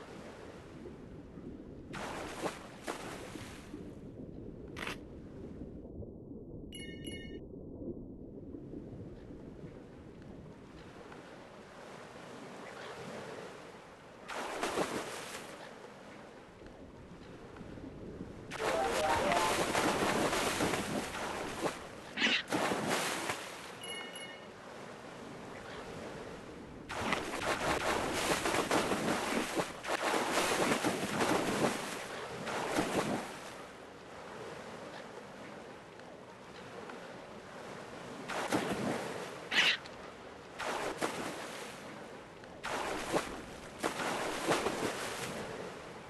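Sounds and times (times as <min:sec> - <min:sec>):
rushing splashing water: 0:11.6 - 0:15.6, 0:18.5 - 0:25.4, 0:26.9 - 0:34.8, 0:37.3 - 0:46.0.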